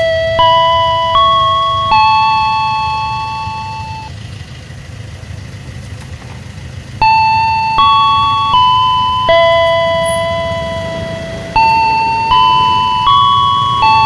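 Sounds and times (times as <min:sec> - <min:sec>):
level crossing warning chime: 0:00.0 - 0:04.2, 0:07.0 - 0:14.0
low steady rumble: 0:00.1 - 0:14.0.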